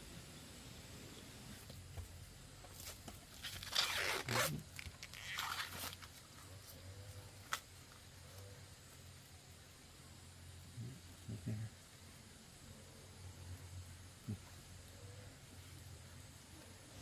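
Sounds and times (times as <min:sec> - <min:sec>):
rough tearing and rustling: 0:02.7 - 0:06.8.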